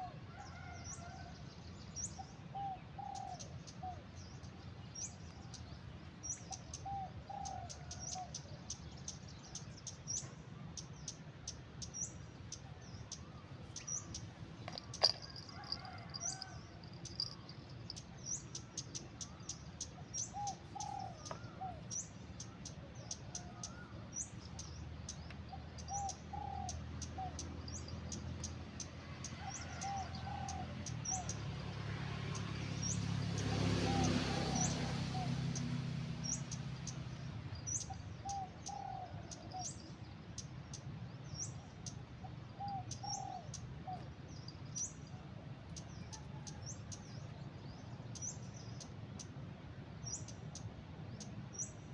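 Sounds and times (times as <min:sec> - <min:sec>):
bird calls: 0:00.0 - 0:28.6, 0:37.5 - 0:49.4
birds chirping: 0:01.8 - 0:31.4.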